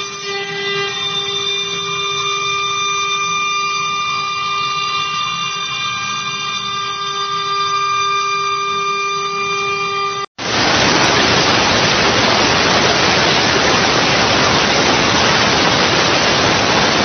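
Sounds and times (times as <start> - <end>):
router spindle whine: 0.0 - 17.0
machining hiss: 10.4 - 17.0.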